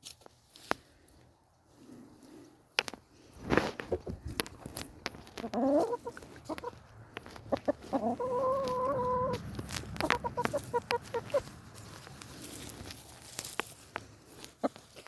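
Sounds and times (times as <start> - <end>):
chickens clucking: 3.4 - 12.9, 13.6 - 15.0.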